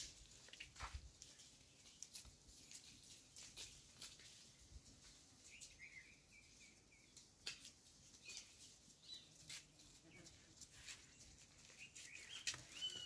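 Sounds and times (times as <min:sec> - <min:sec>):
bird chirping call: 0:11.6 - 0:13.0.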